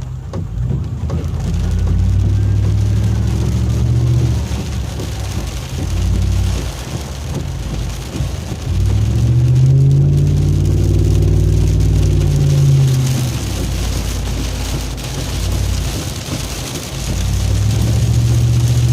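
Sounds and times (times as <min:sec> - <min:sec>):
low engine-like hum: 0:00.0 - 0:18.9
steady rushing noise: 0:00.0 - 0:18.9.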